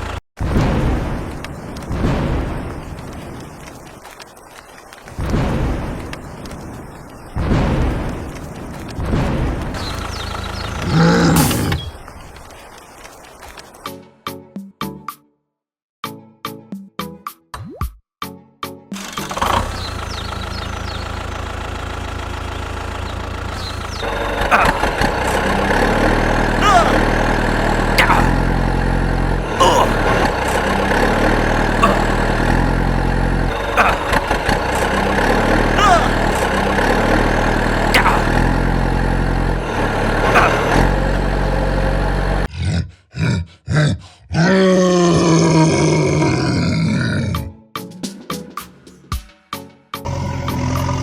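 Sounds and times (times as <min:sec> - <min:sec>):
tractor engine idling: 0:00.0 - 0:00.2, 0:01.2 - 0:11.0, 0:19.0 - 0:42.5.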